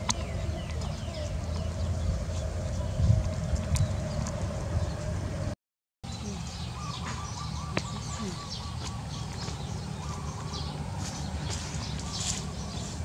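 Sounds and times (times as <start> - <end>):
small songbirds chirping: 0.0 - 5.2, 6.0 - 13.0
low background rumble: 0.0 - 5.6.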